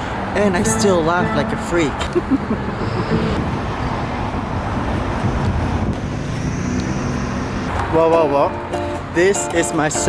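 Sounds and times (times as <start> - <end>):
street traffic passing: 0.0 - 10.0
wind rumbling on microphone: 1.9 - 7.8.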